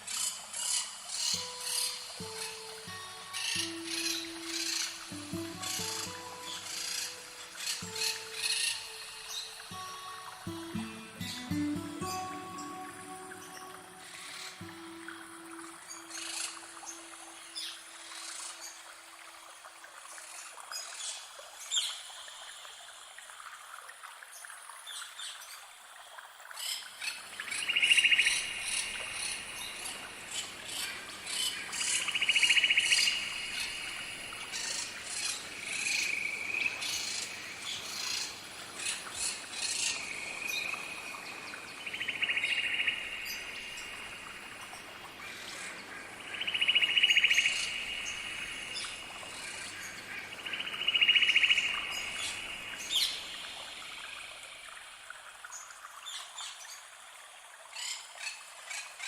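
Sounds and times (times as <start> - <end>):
birds chirping: 0.7 - 18.4, 27.2 - 54.3.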